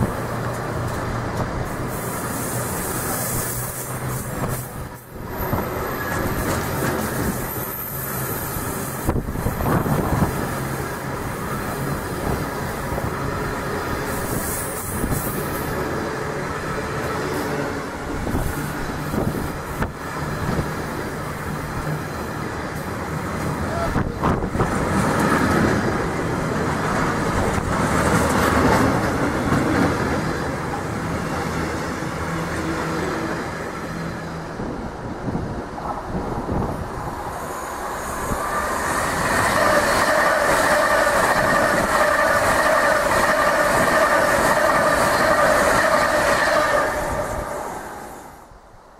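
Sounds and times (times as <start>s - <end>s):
train wheels rumbling on track: 0.0s - 48.9s
train engine tone: 37.0s - 48.6s.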